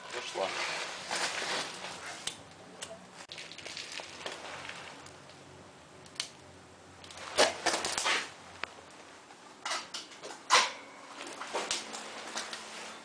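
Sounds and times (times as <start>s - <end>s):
rustling: 0.0s - 2.4s, 3.2s - 5.4s.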